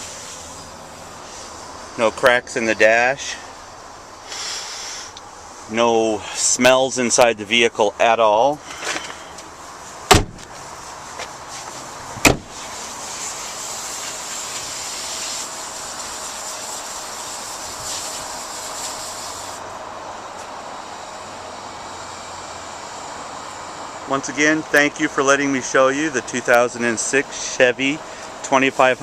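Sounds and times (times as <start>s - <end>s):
truck doors being shut: 10.1s - 10.6s, 11.2s - 12.7s.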